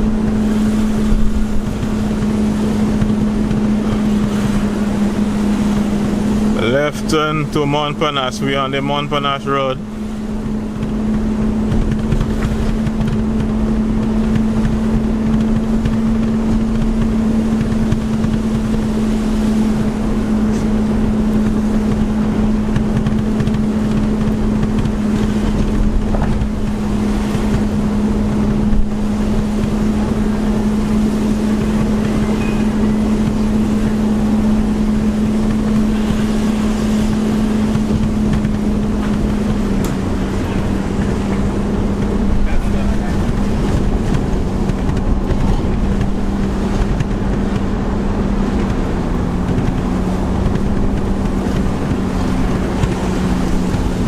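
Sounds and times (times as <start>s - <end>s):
car engine hum: 0.0s - 54.0s
tyre rumble on road: 10.4s - 19.0s, 19.6s - 54.0s.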